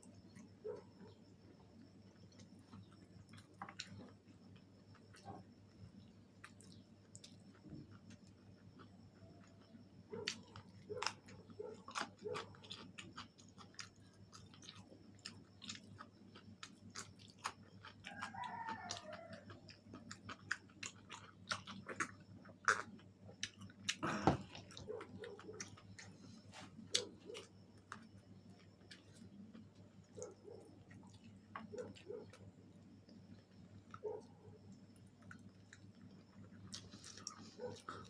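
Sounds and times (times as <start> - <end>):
chewing and crunching: 0.0 - 38.0.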